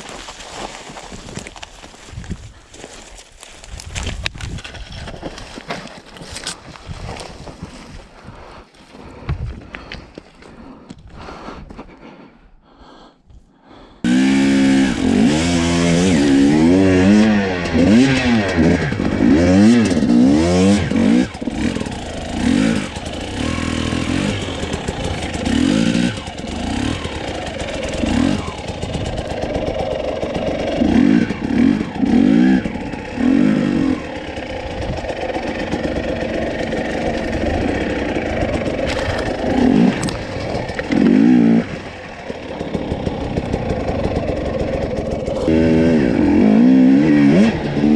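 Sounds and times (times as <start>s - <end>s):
motorcycle engine revving: 14.0s - 47.9s.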